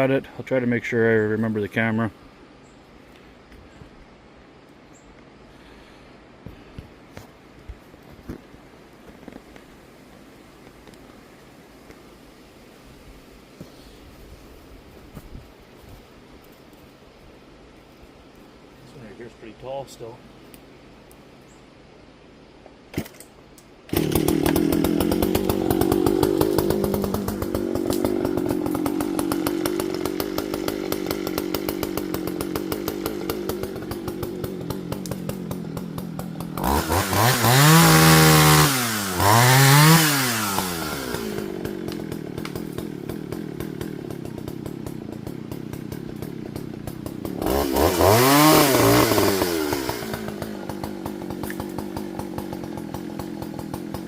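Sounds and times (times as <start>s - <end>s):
chainsaw starting and idling: 22.9s - 54.0s
chainsaw revving: 23.9s - 54.0s.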